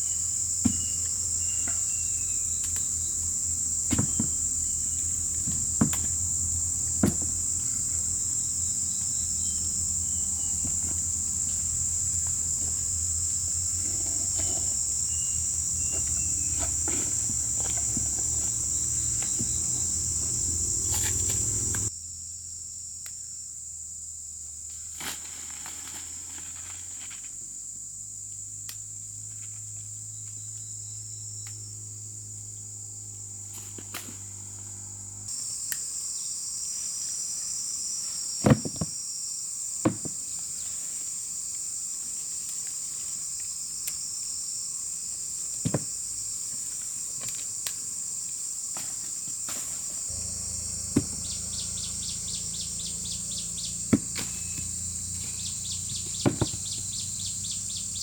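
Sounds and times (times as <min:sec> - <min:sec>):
insects chirring: 0:00.0 - 0:58.0
low rumble: 0:50.1 - 0:54.6.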